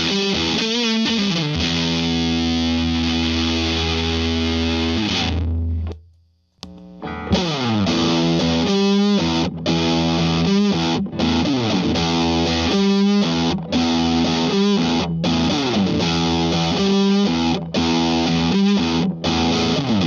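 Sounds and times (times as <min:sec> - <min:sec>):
distorted electric guitar riff: 0:00.0 - 0:06.0, 0:06.6 - 0:20.0.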